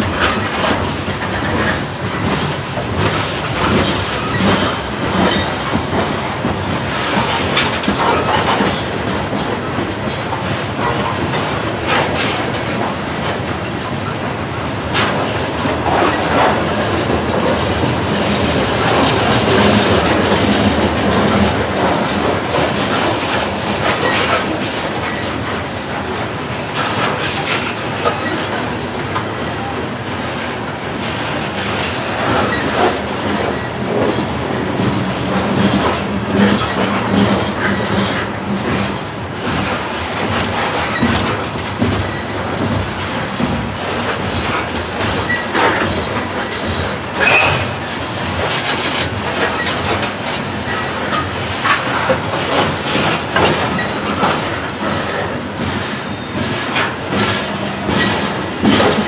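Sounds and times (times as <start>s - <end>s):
heavy rumble of rail cars: 0.0s - 59.0s
train wheels clacking over rails: 0.0s - 59.0s
high wheel squeal: 47.0s - 47.8s.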